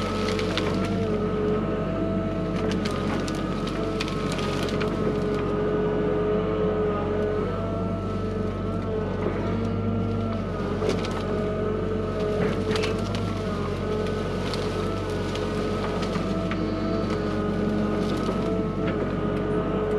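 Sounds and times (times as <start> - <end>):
sharp cracks and knocks: 0.0 - 1.2, 2.5 - 5.5, 10.7 - 11.4, 12.2 - 19.1
excavator engine droning: 0.0 - 19.9.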